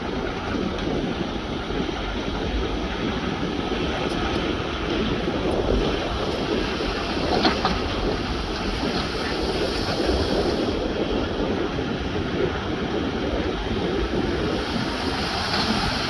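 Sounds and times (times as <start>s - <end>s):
diesel earthmoving machinery running: 0.0s - 16.0s.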